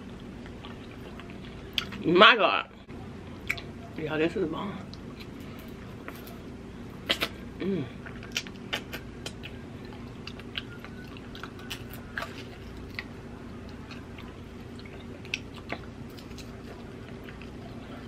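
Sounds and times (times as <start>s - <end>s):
chewing and mouth smacking: 0.0s - 2.0s, 3.4s - 3.8s, 7.0s - 18.0s
steady low hum: 0.0s - 18.0s.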